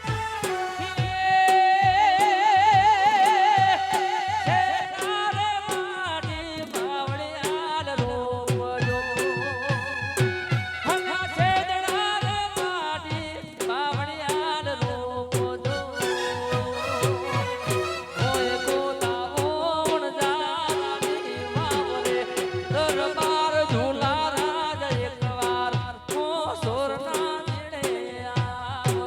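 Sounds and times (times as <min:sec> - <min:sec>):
folk melody with vibrato: 0:00.0 - 0:01.3, 0:15.7 - 0:24.6
steady drum beat: 0:00.0 - 0:29.0.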